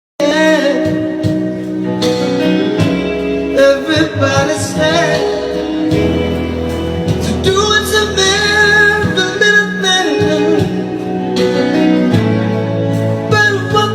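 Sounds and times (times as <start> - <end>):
instrumental backing: 0.2 - 13.9
man singing long notes: 3.5 - 11.8, 13.1 - 13.9.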